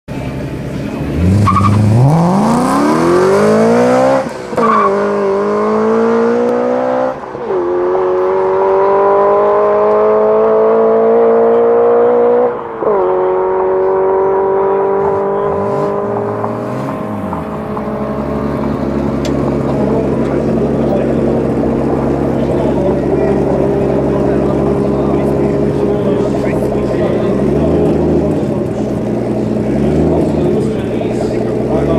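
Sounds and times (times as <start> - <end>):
car accelerating hard with upshifts: 0.2 - 31.9.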